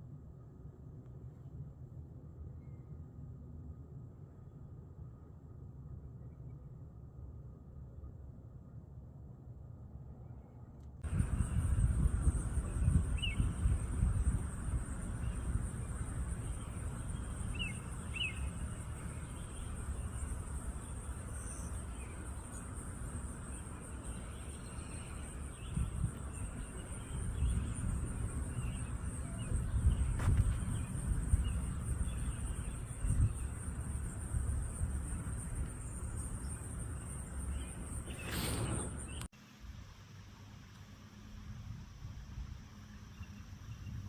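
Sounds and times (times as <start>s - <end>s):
low rumbling noise: 0.0s - 39.3s
bird chirps: 12.5s - 22.7s.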